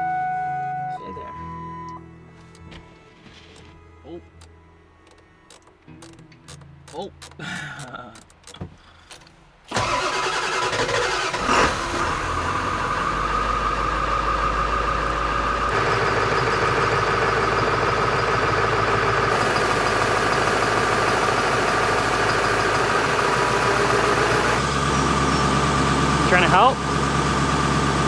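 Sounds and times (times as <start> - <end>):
vehicle engine idling: 8.8 - 28.0.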